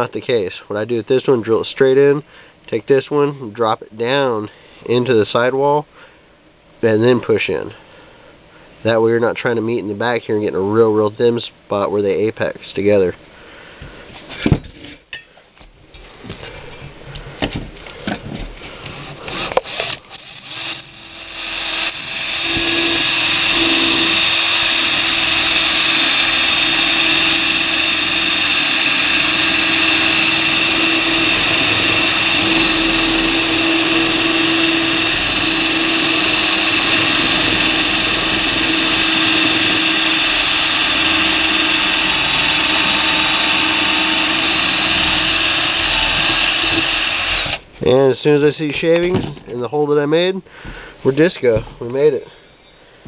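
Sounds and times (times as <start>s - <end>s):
power drill cutting metal: 18.9s - 47.6s.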